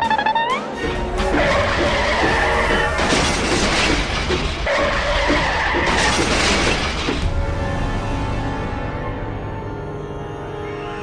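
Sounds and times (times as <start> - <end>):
background music: 0.0 - 11.0
train crash smashing and skidding: 1.2 - 7.6.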